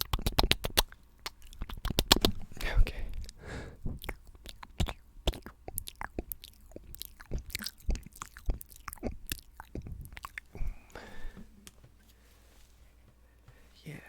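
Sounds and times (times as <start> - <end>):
wet tongue and lip clicks: 0.0 - 11.0.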